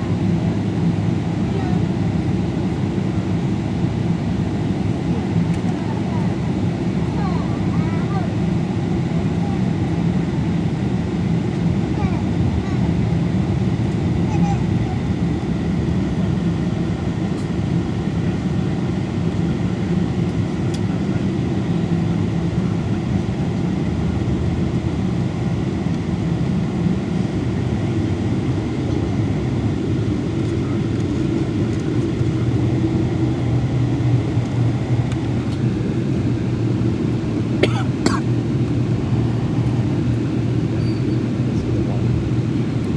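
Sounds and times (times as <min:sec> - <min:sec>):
airliner cabin engine hum: 0:00.0 - 0:42.9.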